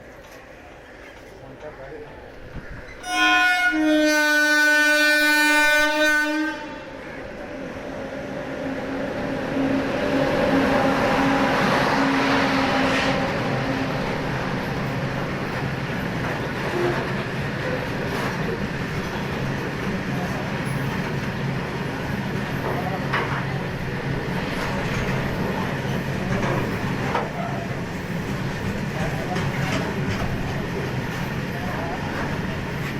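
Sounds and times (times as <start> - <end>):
goods train rumbling past: 0.0 - 32.9
train horn blast: 3.0 - 7.0.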